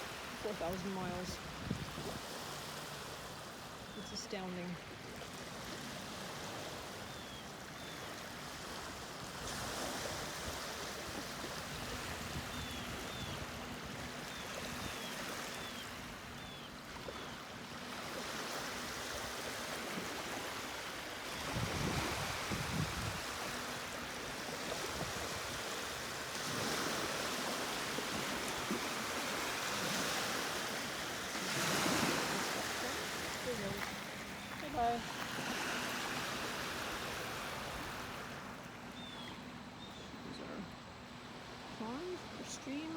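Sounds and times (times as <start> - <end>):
small waves washing on beach: 0.0 - 42.9.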